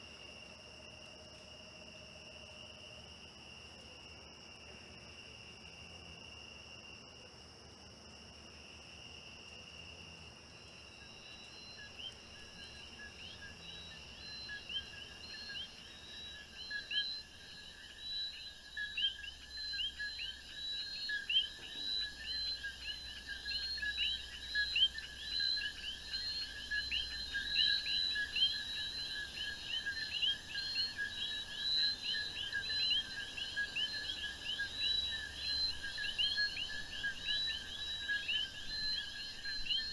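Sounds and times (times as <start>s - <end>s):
cricket trill: 9.3s - 39.9s.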